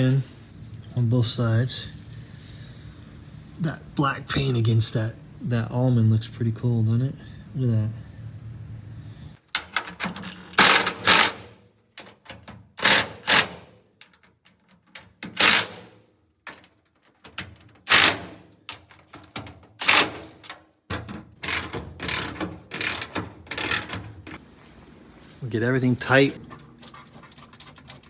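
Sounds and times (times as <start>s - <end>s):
mechanical clicking and clattering: 21.3s - 24.4s.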